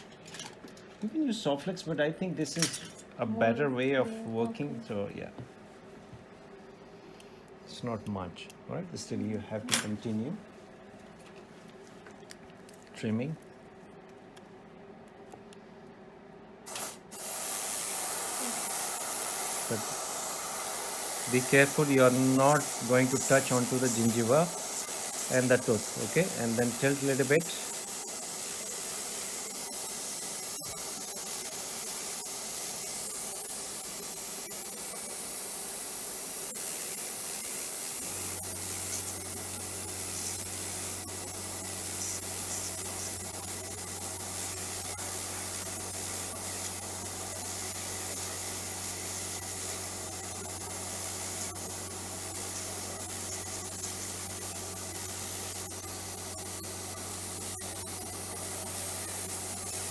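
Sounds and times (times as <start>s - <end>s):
steady low hum: 0.0s - 16.7s
dental disc rubbing hiss: 16.7s - 59.9s.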